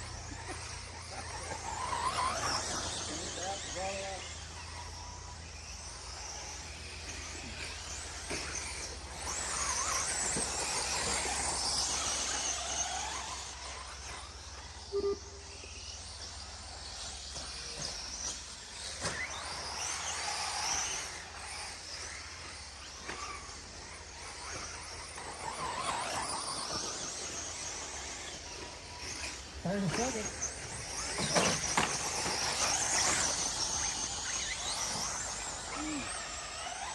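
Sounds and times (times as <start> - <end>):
rc truck motors whining: 0.0 - 36.9
brief loud tone: 14.9 - 15.4.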